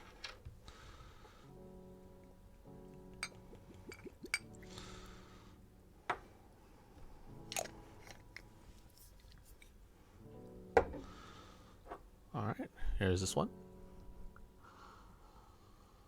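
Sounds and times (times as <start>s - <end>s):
faint background music: 0.0s - 16.0s
bottle and glass clicks and knocks: 3.2s - 4.5s.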